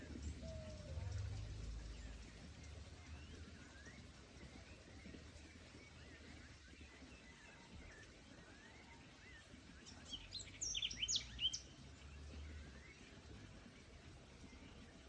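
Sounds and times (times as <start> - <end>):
low steady rumble: 0.0 - 5.9
bird singing sweeping notes: 0.0 - 13.3.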